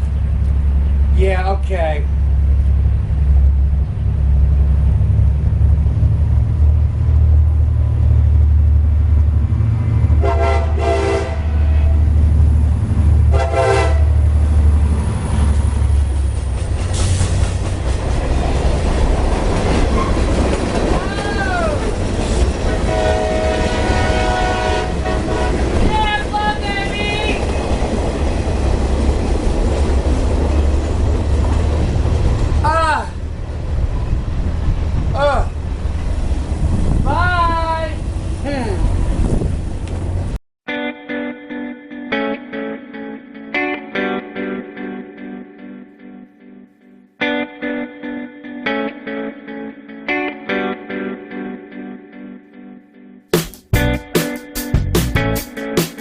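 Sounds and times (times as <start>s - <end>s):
train cars rattling by: 0.0s - 37.0s
diesel locomotive rumble: 0.0s - 40.4s
train horn blasts: 10.2s - 12.1s, 13.3s - 14.3s, 22.6s - 26.1s.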